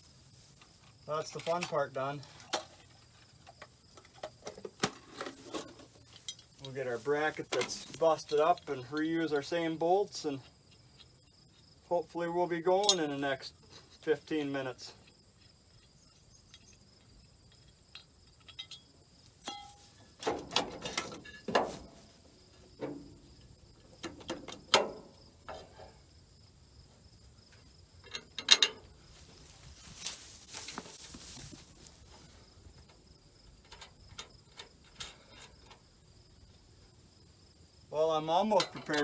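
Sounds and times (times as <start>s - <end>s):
crickets chirping: 0.0s - 39.0s
rustle: 0.0s - 39.0s
metal parts clinking: 28.0s - 30.8s.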